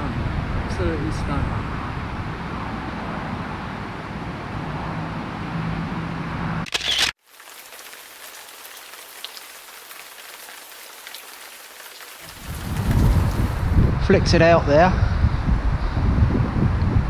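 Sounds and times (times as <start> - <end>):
wind buffeting microphone: 0.0 - 4.7, 12.3 - 17.0
rain: 7.1 - 14.0
microphone handling rustle: 12.3 - 14.0.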